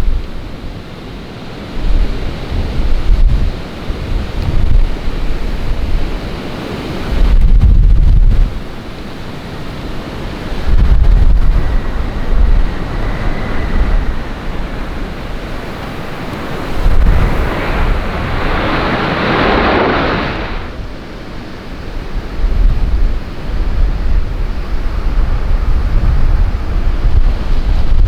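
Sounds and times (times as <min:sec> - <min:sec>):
wind buffeting microphone: 0:00.0 - 0:28.0
bright rushing noise: 0:10.1 - 0:21.0.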